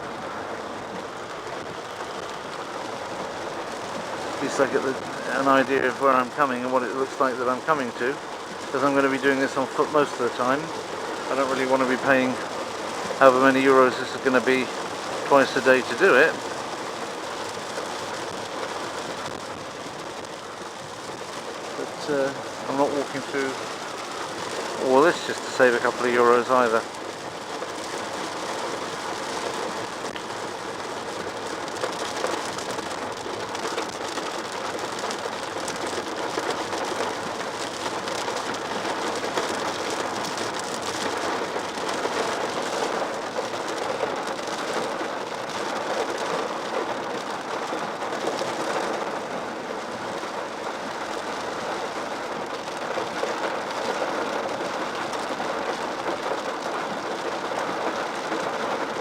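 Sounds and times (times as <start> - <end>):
heavy rain on a car: 0.0 - 59.0.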